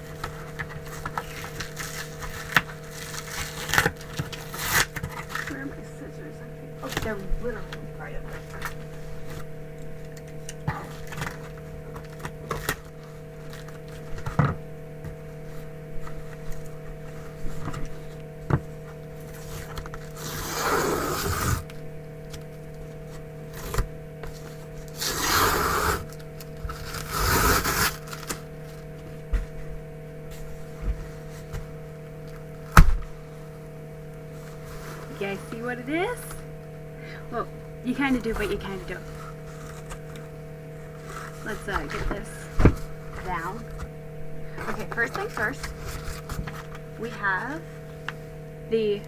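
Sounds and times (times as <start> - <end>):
steady hum: 0.0 - 49.0
scissors slitting packing tape: 2.3 - 5.5.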